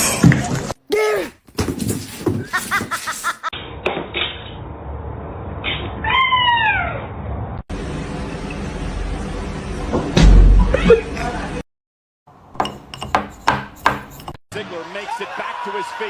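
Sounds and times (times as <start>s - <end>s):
cat meowing: 6.0s - 7.1s.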